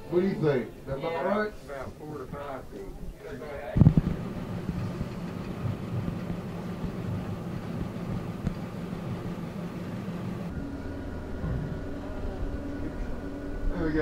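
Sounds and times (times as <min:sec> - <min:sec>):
boat motor humming: 0:03.9 - 0:14.0.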